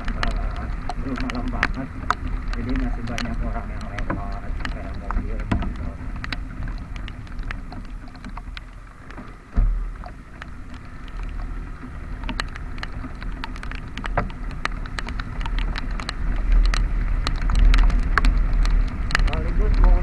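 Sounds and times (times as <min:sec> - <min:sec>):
low wind rumble: 0:00.0 - 0:20.0
raindrops ticking on camera case: 0:00.0 - 0:20.0
loud thump: 0:09.6 - 0:09.8.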